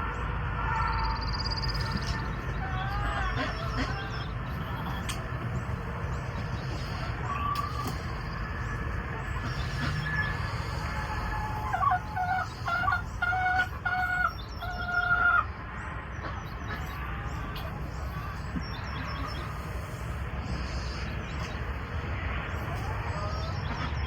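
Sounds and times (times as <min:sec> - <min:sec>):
small birds chirping: 0:00.8 - 0:24.0
rooster crowing: 0:09.7 - 0:14.8.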